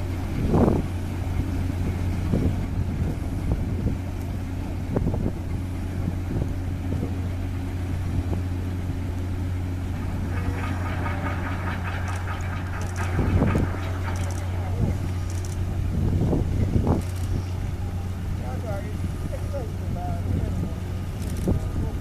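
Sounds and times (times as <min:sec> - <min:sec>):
ship engine droning: 0:00.0 - 0:22.0.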